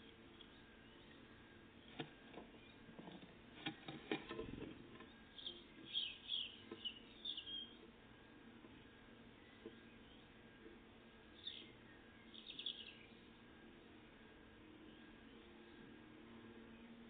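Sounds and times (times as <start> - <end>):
small songbirds chirping: 0.0 - 2.9, 4.9 - 17.0
sharp knocks and rattle: 2.0 - 5.1.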